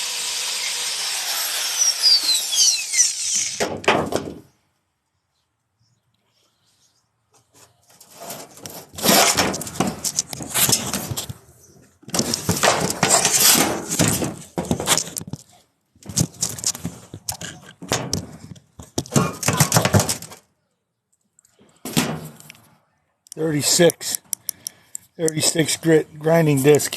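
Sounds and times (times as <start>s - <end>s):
power tool grinding and scraping: 0.0s - 3.6s, 12.1s - 15.0s.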